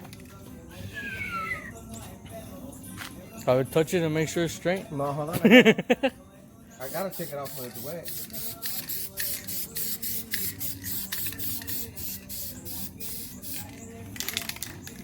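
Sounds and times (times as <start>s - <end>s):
spray paint hissing bursts: 6.8s - 14.7s.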